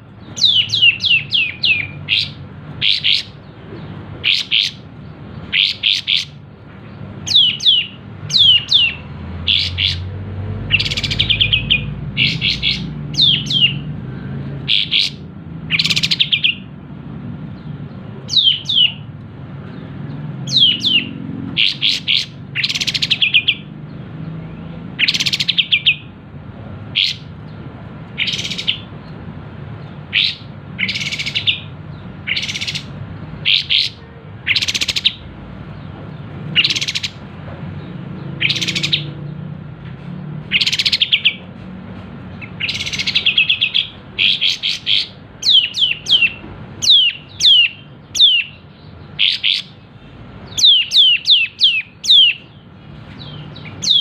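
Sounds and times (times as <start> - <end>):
bird chirping: 0.0 - 16.8, 17.4 - 26.2, 26.8 - 39.5, 40.5 - 41.6, 42.2 - 54.0.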